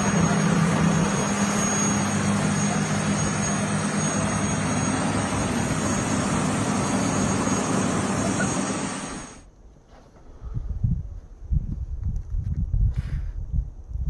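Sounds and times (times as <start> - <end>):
mechanical drone with hiss: 0.0 - 9.4.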